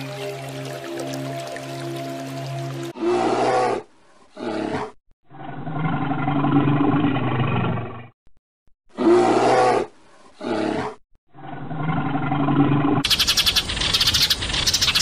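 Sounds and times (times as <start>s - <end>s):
bear roaring and growling: 2.9s - 8.1s, 8.9s - 13.0s.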